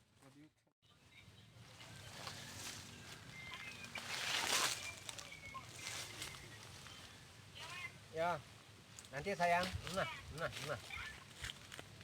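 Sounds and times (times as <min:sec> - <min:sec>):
rustling in forest undergrowth: 0:01.0 - 0:12.0
faint whistled bird notes: 0:01.9 - 0:07.3.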